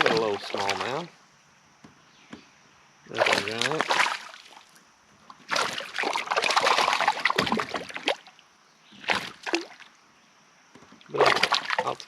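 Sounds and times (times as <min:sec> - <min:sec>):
fish thrashing and splashing water: 0:00.0 - 0:01.0, 0:03.1 - 0:04.7, 0:05.4 - 0:08.3, 0:09.0 - 0:09.9, 0:11.1 - 0:12.0.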